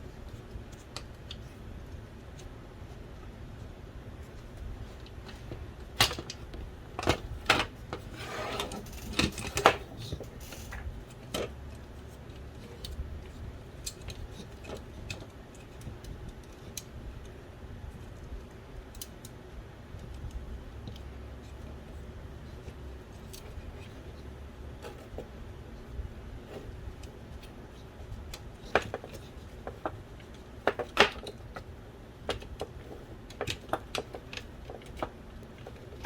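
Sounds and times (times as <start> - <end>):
small parts clicking and tapping: 8.8 - 25.4, 26.4 - 36.0.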